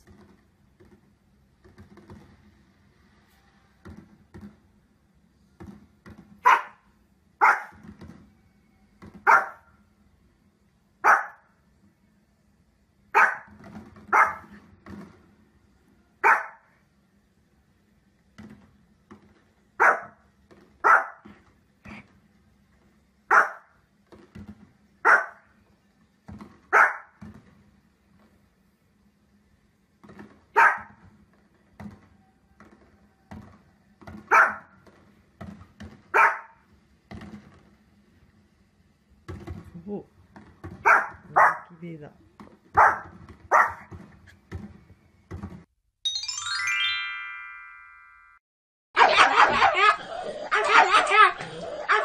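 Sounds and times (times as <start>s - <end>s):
dog barking: 6.4s - 7.8s, 9.2s - 9.7s, 11.0s - 11.5s, 13.2s - 13.5s, 14.1s - 14.5s, 16.2s - 16.7s, 19.8s - 20.2s, 20.8s - 21.3s, 23.3s - 23.7s, 25.0s - 25.4s, 26.7s - 27.2s, 30.6s - 31.0s, 34.3s - 34.7s, 36.2s - 36.6s, 40.8s - 41.7s, 42.8s - 43.9s, 49.0s - 52.0s.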